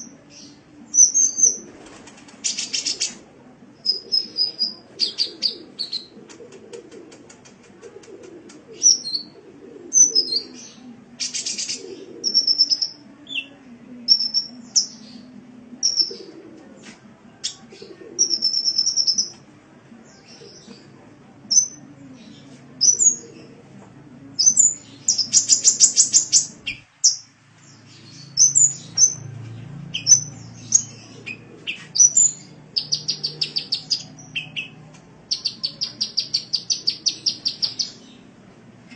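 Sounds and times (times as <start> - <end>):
sunbird chirping and twittering: 24.4 - 38.0.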